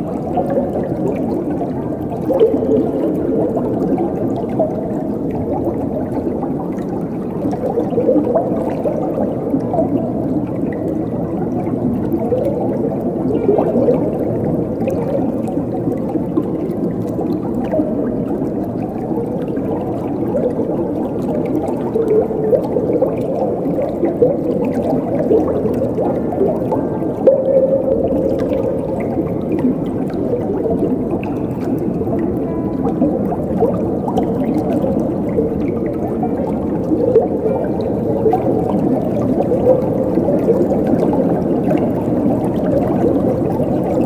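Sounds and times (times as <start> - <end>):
water gurgling: 0.0 - 44.0.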